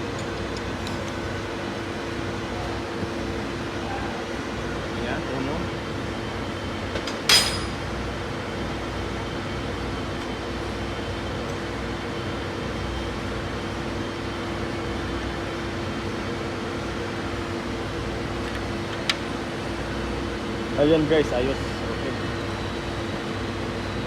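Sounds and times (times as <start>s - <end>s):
steady mechanical hum: 0.0s - 24.0s
sharp metallic clank: 7.3s - 7.8s.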